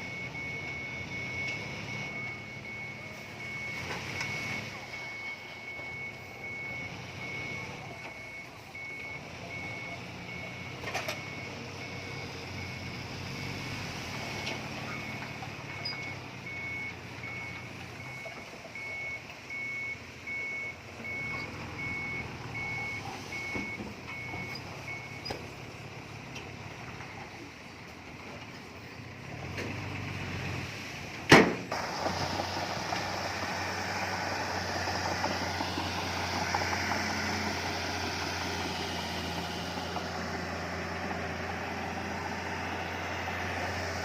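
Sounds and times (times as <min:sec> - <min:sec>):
reversing alarm beeping: 0:00.0 - 0:25.4
diesel engine running low: 0:00.0 - 0:44.0.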